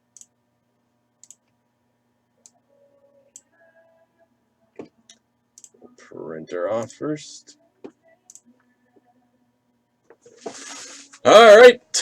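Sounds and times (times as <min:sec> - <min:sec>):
faint hum: 0:00.0 - 0:12.0
computer mouse clicks: 0:01.2 - 0:01.4, 0:05.1 - 0:05.8.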